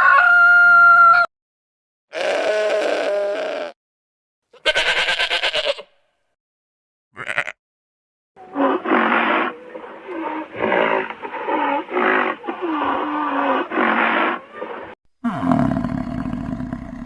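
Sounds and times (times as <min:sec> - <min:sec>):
animal giving rough calls: 0:08.5 - 0:14.4.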